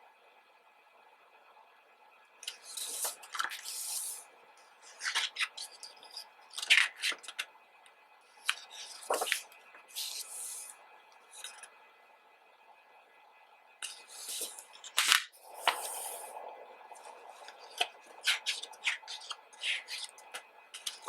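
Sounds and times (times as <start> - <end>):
pages turning: 2.4 - 4.2, 4.9 - 7.4, 8.4 - 10.7, 13.8 - 16.3, 17.0 - 21.0.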